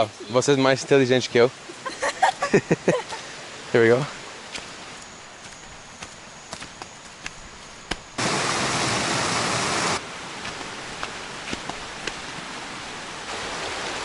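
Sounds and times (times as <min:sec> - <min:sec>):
waterfall rushing: 0:08.2 - 0:14.0.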